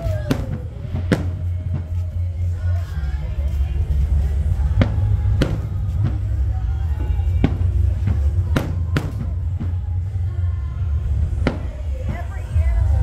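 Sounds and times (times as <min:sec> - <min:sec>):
fireworks bangs: 0:00.0 - 0:02.0, 0:04.6 - 0:10.4, 0:11.0 - 0:12.8
steady low rumble: 0:00.0 - 0:13.0.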